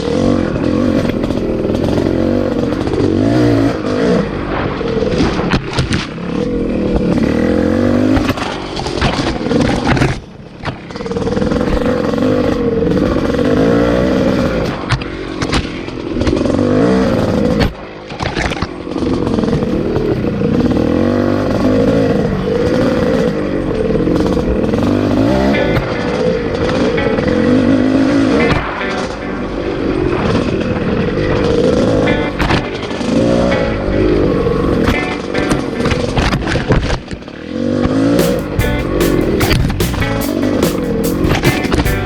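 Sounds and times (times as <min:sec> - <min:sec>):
dirt bike engine revving: 0:00.0 - 0:10.0, 0:18.9 - 0:42.0.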